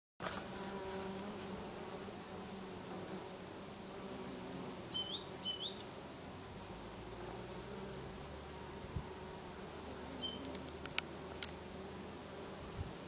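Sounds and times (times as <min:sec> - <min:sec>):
bees buzzing: 0:00.3 - 0:13.0.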